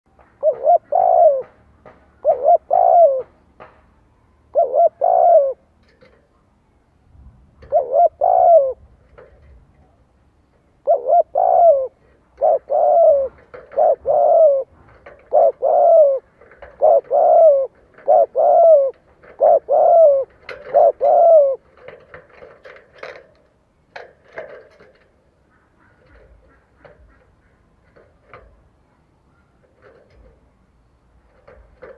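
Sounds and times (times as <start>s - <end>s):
dove cooing: 0.4s - 1.6s, 2.2s - 3.5s, 4.4s - 6.2s, 7.6s - 9.4s, 10.8s - 23.3s, 24.3s - 30.4s.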